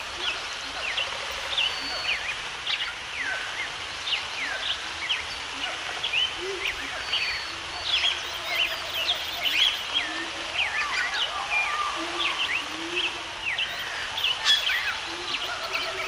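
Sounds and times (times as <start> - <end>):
background hiss: 0.0 - 16.0
birds singing: 0.0 - 16.0.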